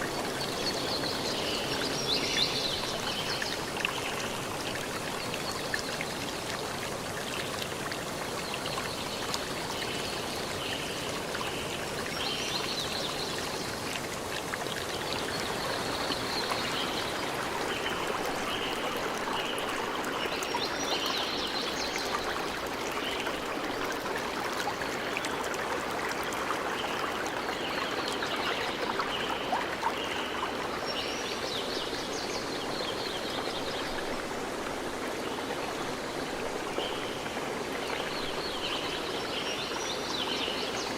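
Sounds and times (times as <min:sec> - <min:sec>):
stream rushing: 0:14.0 - 0:40.6.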